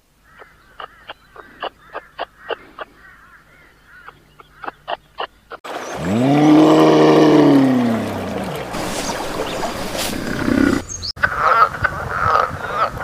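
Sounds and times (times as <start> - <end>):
long low animal call: 6.0 - 12.9.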